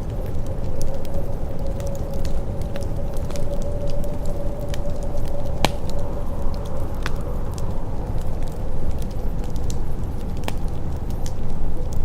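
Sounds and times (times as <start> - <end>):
faint steady hum: 0.0 - 12.0
fireplace crackling and popping: 0.0 - 12.0
low rumble: 0.0 - 12.0.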